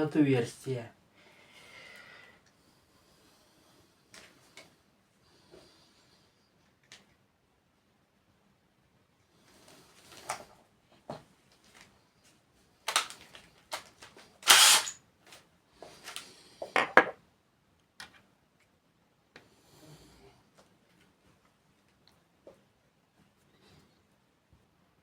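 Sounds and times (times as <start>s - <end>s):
tools clicking and knocking: 14.4s - 15.0s.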